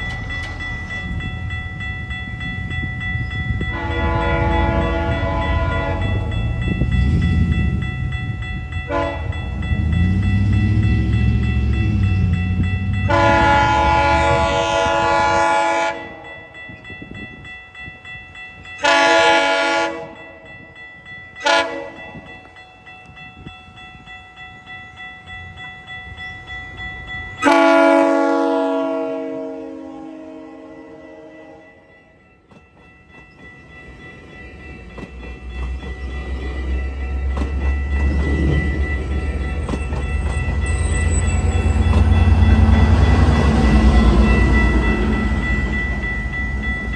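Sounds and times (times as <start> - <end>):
passing train rumble: 0.0 - 46.9
train air horn blasts: 3.7 - 6.6, 8.9 - 9.4, 13.0 - 16.3, 18.8 - 20.2, 21.4 - 22.1, 27.4 - 31.9.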